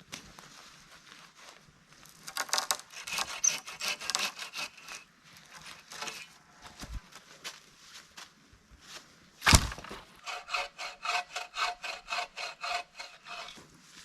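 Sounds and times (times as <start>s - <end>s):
hand saw cutting wood: 2.3s - 6.3s, 9.5s - 13.6s
wood scraping and rubbing: 2.3s - 7.0s, 9.5s - 13.6s.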